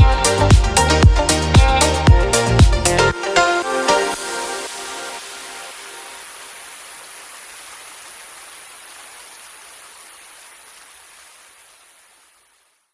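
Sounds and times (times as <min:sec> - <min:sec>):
stream and waterfall rushing: 0:03.1 - 0:12.9.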